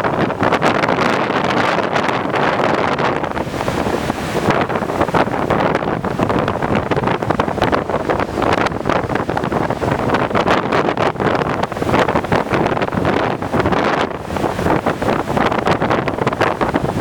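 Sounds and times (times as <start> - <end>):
heavy surf washing: 0.0 - 17.0
strong wind buffeting microphone: 0.0 - 17.0.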